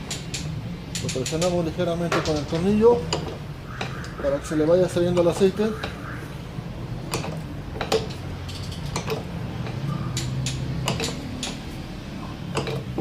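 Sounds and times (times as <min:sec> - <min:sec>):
small metallic clicks and taps: 0:00.0 - 0:04.1, 0:07.1 - 0:11.7, 0:12.5 - 0:13.0
steady low hum: 0:00.0 - 0:13.0.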